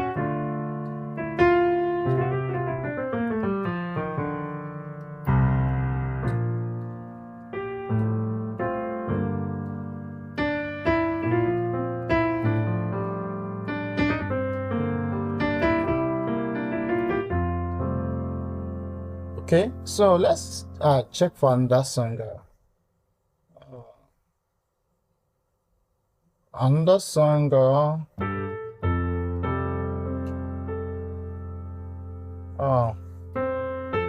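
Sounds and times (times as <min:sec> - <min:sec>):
jazz piano chords: 0:00.0 - 0:22.4, 0:27.4 - 0:34.0.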